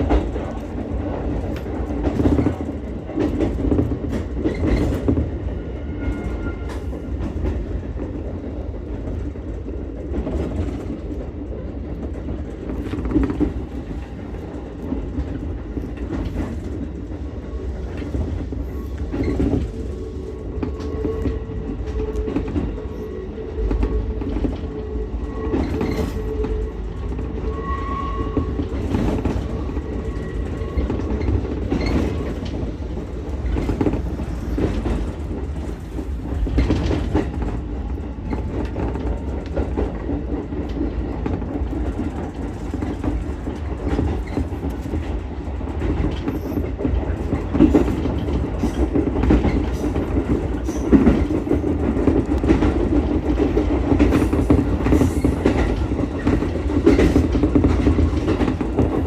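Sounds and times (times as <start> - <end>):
electric railcar rumbling along track: 0.0 - 59.0
wheels clicking over rail joints: 28.2 - 59.0.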